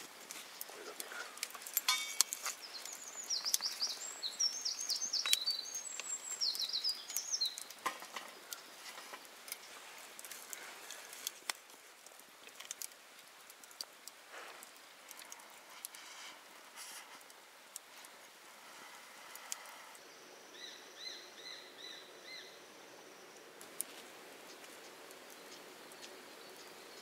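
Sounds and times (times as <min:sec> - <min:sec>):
bird chirping: 0:01.9 - 0:08.8, 0:20.0 - 0:23.5.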